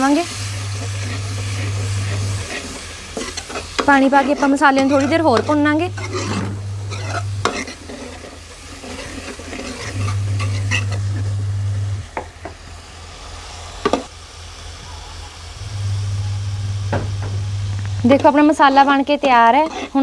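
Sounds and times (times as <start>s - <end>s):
masala sizzling in a pan: 0.0s - 20.0s
low steady hum: 14.9s - 18.6s.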